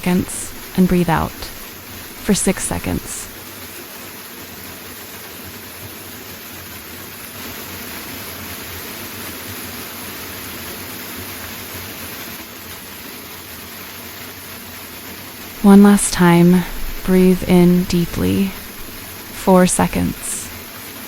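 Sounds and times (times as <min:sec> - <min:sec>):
waterfall roaring: 0:15.4 - 0:20.6.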